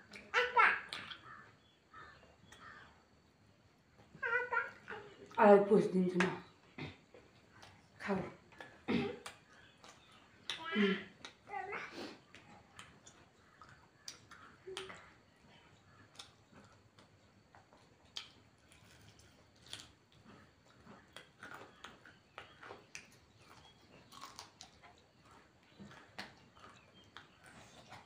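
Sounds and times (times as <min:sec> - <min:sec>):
people chewing food: 0:00.0 - 0:05.4, 0:06.2 - 0:28.0
soft mouth clicks and smacks: 0:06.8 - 0:07.9, 0:08.5 - 0:11.5, 0:12.2 - 0:28.0.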